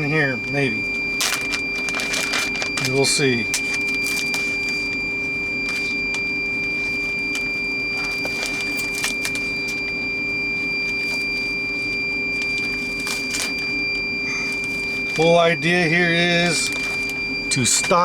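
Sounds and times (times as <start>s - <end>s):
high whine: 0.0s - 18.0s
machine hum: 0.0s - 18.0s
plastic packaging crackling: 1.2s - 5.0s, 8.0s - 9.9s, 12.4s - 13.8s, 16.4s - 17.4s.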